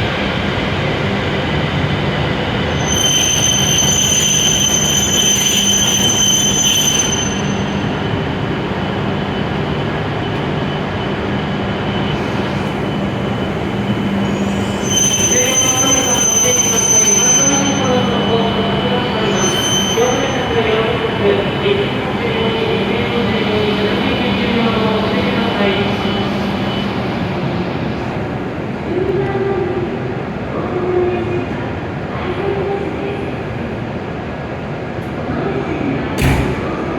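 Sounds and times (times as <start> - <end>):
train running: 0.0 - 36.9
high-pitched whine: 2.6 - 28.3.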